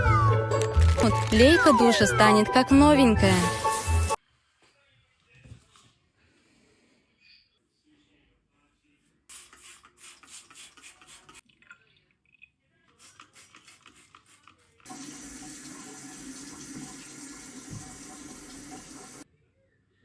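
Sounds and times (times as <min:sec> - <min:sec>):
water running from a tap: 0:14.9 - 0:19.2.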